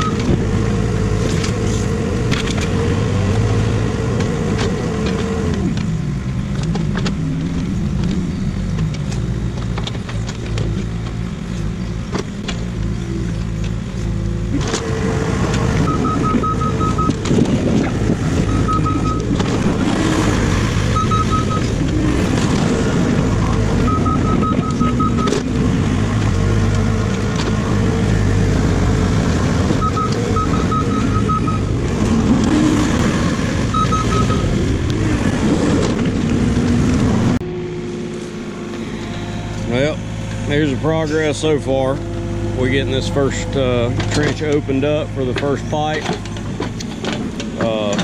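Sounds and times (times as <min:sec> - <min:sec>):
excavator engine running hard: 0:00.0 - 0:48.0
rapid high-pitched electronic beeps: 0:15.9 - 0:17.2, 0:18.5 - 0:19.3, 0:21.0 - 0:21.6, 0:29.8 - 0:31.6, 0:33.7 - 0:34.5.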